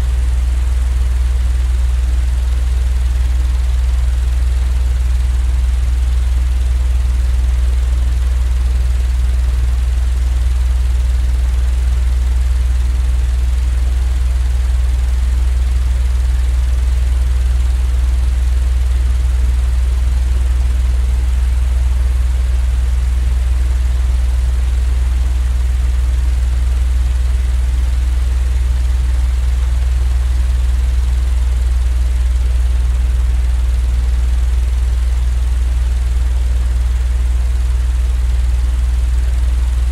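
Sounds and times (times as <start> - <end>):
low droning hum: 13.9 - 17.6, 25.6 - 39.9.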